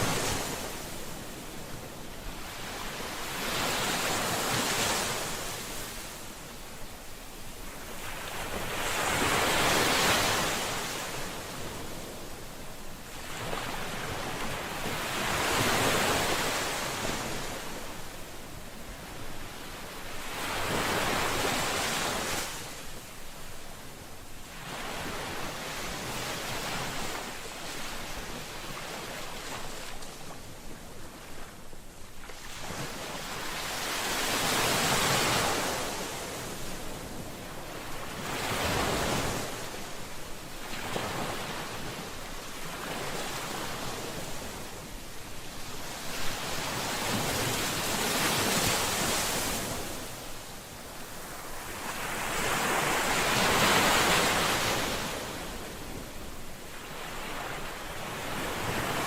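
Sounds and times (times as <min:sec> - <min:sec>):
ocean waves surf: 0:00.0 - 0:59.0.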